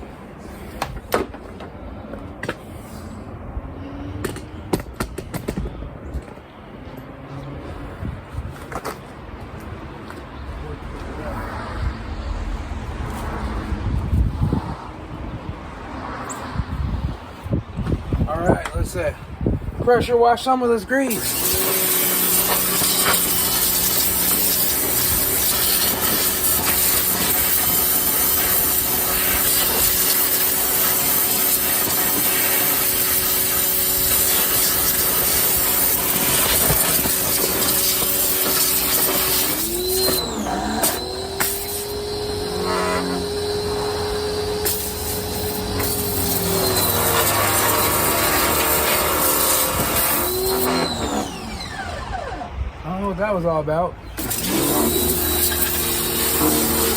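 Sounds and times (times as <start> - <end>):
pressure washer water jet: 21.0 - 52.4, 54.1 - 56.9.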